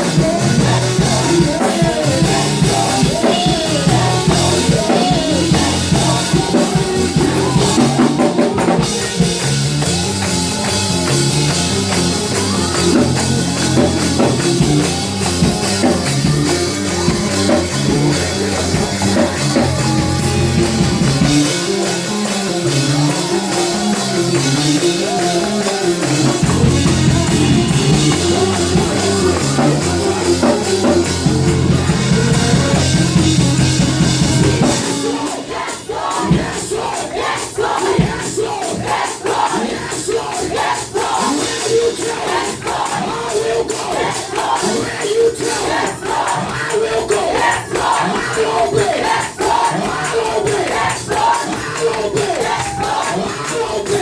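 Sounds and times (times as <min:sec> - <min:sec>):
faint singing: 0:00.0 - 0:54.0
live gospel music with drums: 0:00.0 - 0:54.0.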